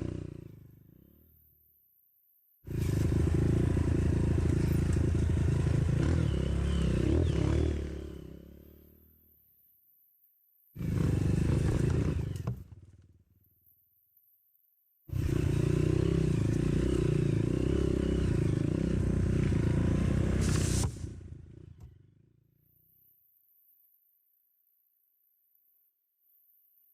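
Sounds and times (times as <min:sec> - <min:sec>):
dirt bike engine revving: 0:00.0 - 0:01.0, 0:02.7 - 0:09.1, 0:10.8 - 0:12.9, 0:15.1 - 0:22.2.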